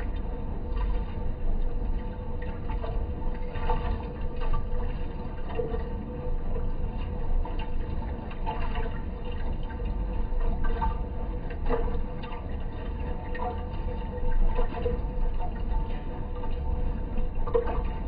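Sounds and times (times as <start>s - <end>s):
washing machine running: 0.0s - 18.0s.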